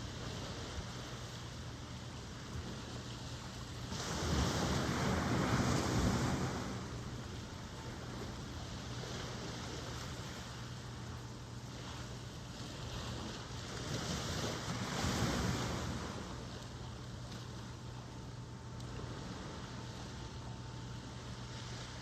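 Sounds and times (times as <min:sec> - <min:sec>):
ocean surf washing: 0:02.4 - 0:16.7.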